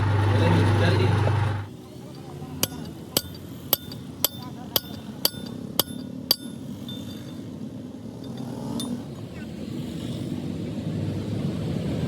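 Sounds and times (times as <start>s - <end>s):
hammer striking metal: 2.6s - 7.2s.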